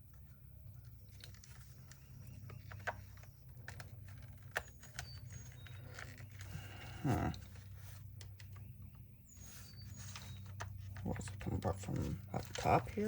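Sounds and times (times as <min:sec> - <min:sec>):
plastic parts clicking and tapping: 0:00.8 - 0:06.6.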